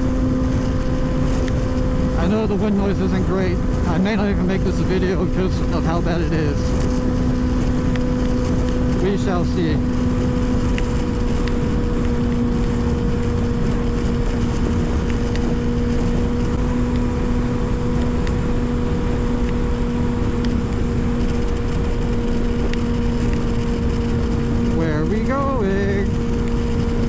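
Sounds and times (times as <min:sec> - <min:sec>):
motorcycle engine cruising: 0:00.0 - 0:27.0
wind buffeting on microphone: 0:00.0 - 0:27.0.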